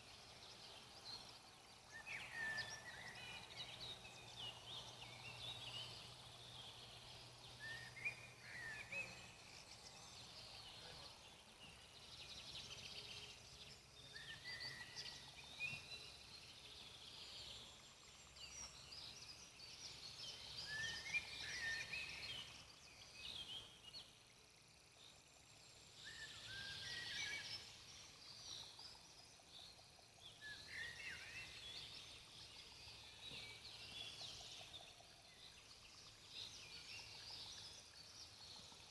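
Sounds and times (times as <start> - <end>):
faint songbirds chirping: 0.0 - 38.9.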